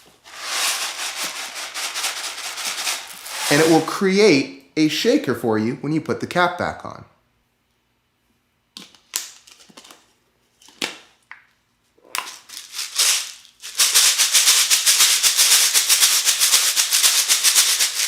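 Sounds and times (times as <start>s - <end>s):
rice rattling in plastic bottle: 0.3s - 3.9s, 12.3s - 18.0s.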